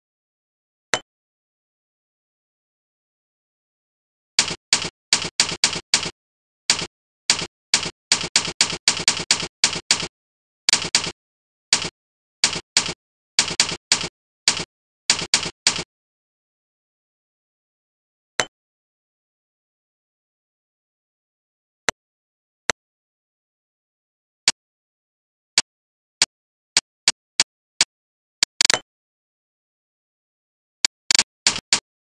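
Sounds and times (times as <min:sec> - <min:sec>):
keystroke clicks: 0:04.4 - 0:10.1, 0:10.7 - 0:15.9, 0:30.8 - 0:31.8.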